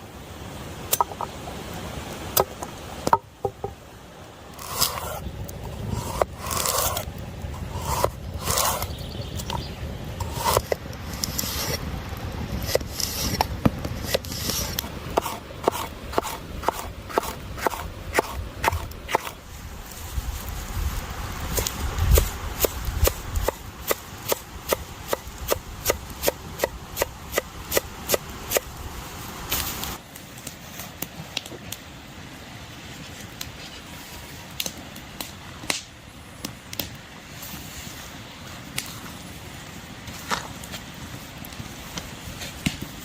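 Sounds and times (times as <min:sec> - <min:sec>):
knife scraping board: 0:04.6 - 0:05.2, 0:05.8 - 0:09.6, 0:10.2 - 0:11.8, 0:12.6 - 0:19.4.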